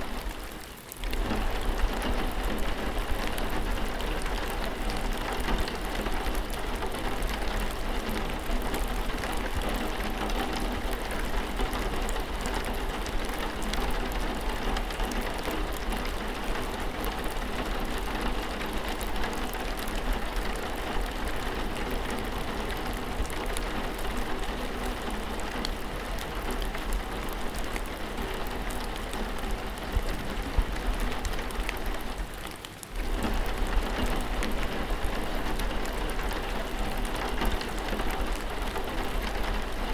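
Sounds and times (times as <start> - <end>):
raindrops pattering: 0.0 - 39.9
steady rainfall: 0.0 - 39.9.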